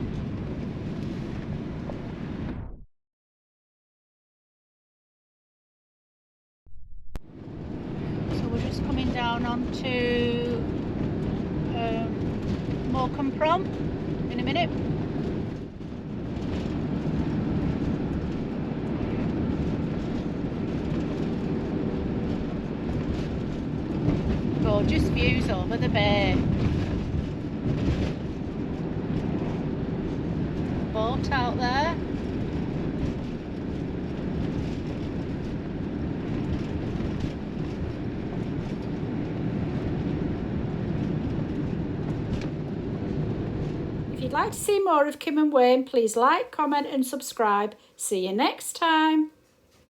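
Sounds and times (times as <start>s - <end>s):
vehicle engine and road noise: 0.0s - 2.8s, 7.2s - 47.6s.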